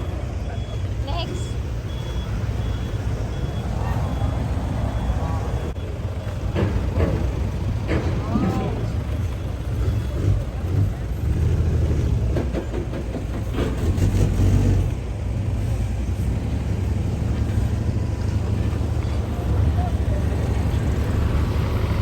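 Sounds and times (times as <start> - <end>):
faint voices: 0.0 - 13.2
vehicle engine rumbling: 0.0 - 22.0.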